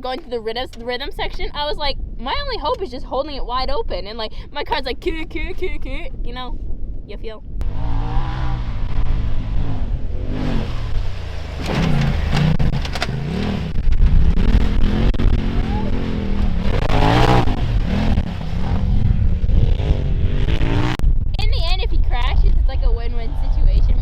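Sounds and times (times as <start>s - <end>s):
engine revving: 7.6s - 21.2s.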